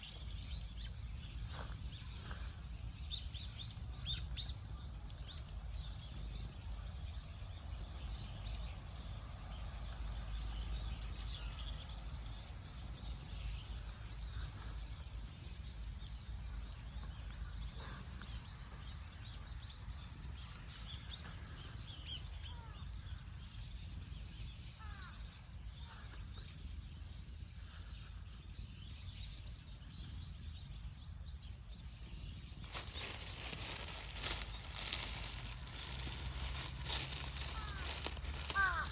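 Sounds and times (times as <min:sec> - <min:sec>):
small birds chirping: 0:31.9 - 0:38.9.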